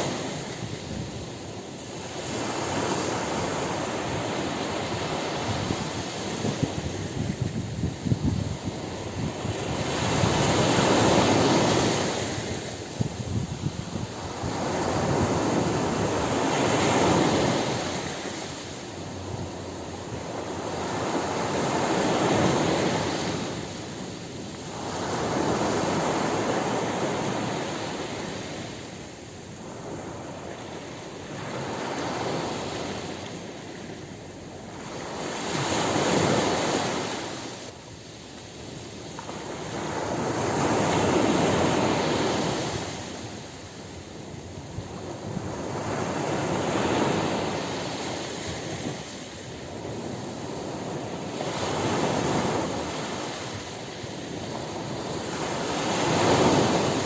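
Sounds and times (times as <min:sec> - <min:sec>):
ocean surf breaking: 0:00.0 - 0:38.0, 0:38.7 - 0:57.0.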